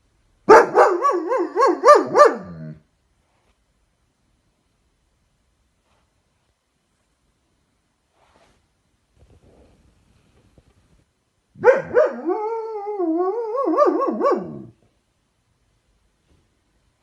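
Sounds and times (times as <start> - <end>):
dog howling: 11.6 - 14.8.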